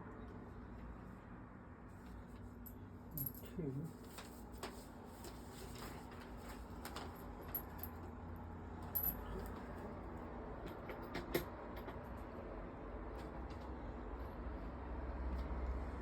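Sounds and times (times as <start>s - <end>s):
low steady hum: 0.0s - 10.3s.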